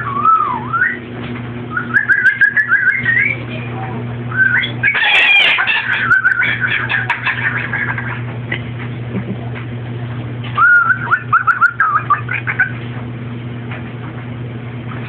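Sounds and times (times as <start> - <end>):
parrot warbling whistles: 0.0 - 1.0, 1.7 - 3.4, 4.3 - 7.1, 10.6 - 12.3
steady low hum: 0.0 - 15.0.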